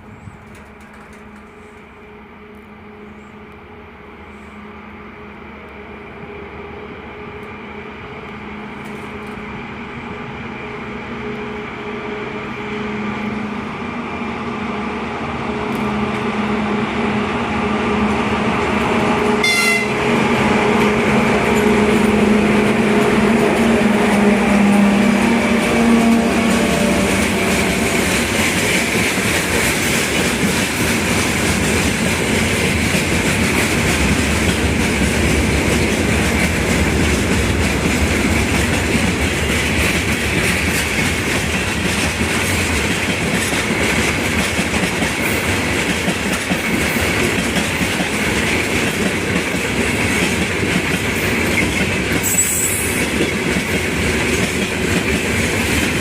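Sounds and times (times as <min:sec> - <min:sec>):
freight wagons rolling on rails: 0:00.0 - 0:02.0, 0:18.7 - 0:56.0
high squeal of wheels on rail: 0:00.0 - 0:03.5, 0:19.2 - 0:20.0, 0:51.2 - 0:53.3
diesel locomotive engine hum: 0:00.0 - 0:56.0
wheels clattering over rail joints: 0:00.2 - 0:01.8.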